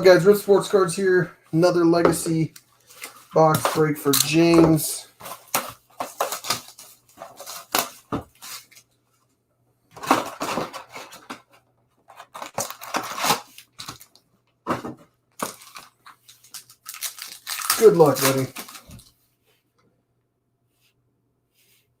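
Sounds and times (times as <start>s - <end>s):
foil wrappers tearing and crinkling: 5.4s - 8.8s, 12.2s - 14.2s, 15.4s - 19.1s.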